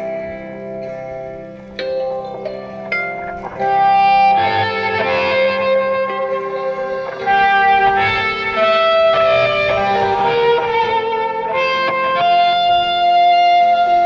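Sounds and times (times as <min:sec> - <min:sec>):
electric guitar melody: 0:00.0 - 0:14.0
live rock band: 0:03.0 - 0:14.0.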